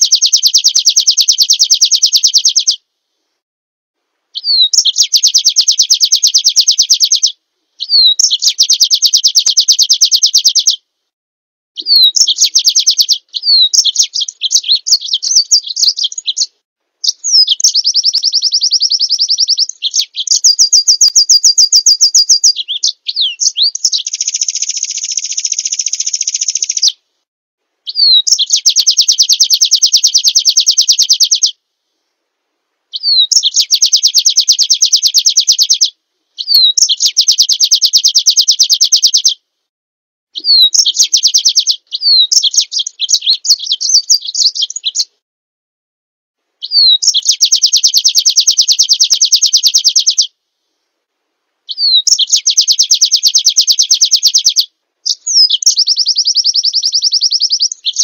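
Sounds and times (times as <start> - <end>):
songbird fast high trill: 4.4 - 10.8, 11.8 - 27.0, 27.9 - 31.5, 32.9 - 39.4, 40.4 - 45.1, 46.6 - 50.3, 51.7 - 58.0.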